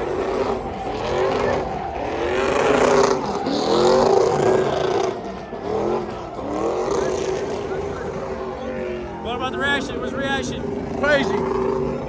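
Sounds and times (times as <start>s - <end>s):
vehicle engine revving hard: 0.0s - 12.0s.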